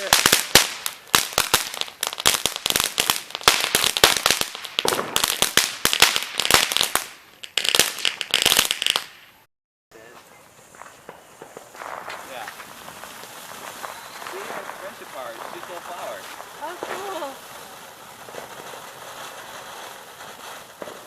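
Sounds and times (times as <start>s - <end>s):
fireworks crackling: 0.0s - 21.0s.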